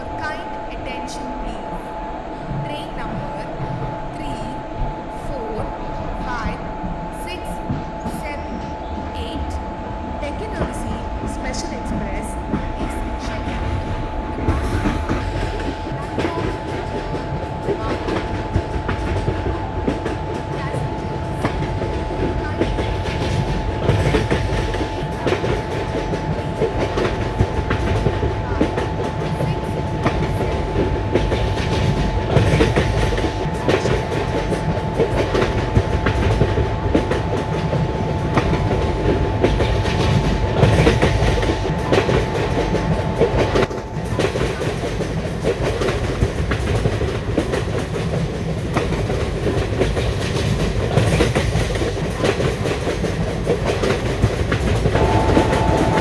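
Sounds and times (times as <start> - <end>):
steady hum: 0.0 - 56.0
train wheels clicking over rail joints: 11.6 - 56.0.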